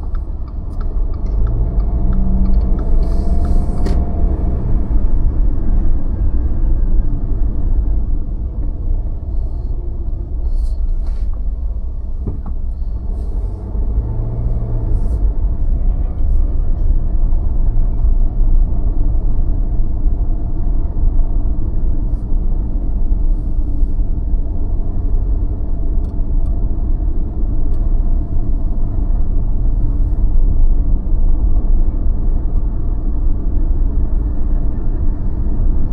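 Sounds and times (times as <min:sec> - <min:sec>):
car engine and tyres rumbling: 0:00.0 - 0:35.9.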